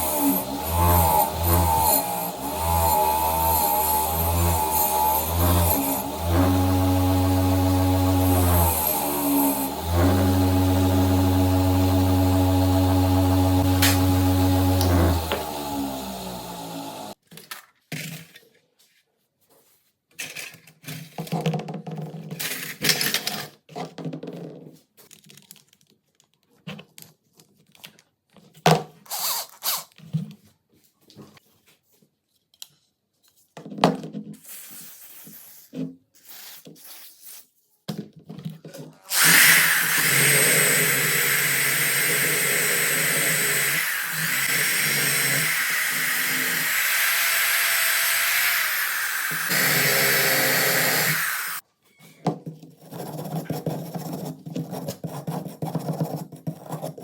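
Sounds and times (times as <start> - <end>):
small power tool running: 0.0 - 17.2, 39.1 - 51.6.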